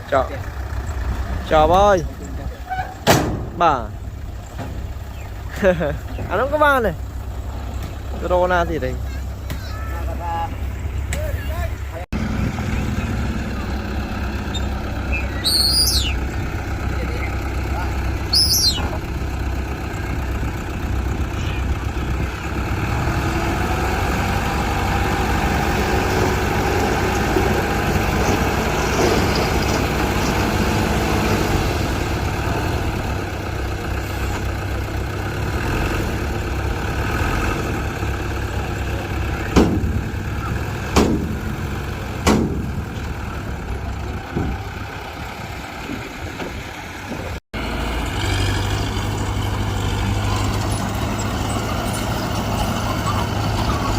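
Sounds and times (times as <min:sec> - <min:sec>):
heavy diesel machinery running: 0:00.0 - 0:53.9
sharp knocks: 0:39.5 - 0:40.0, 0:40.9 - 0:41.5, 0:42.2 - 0:42.8.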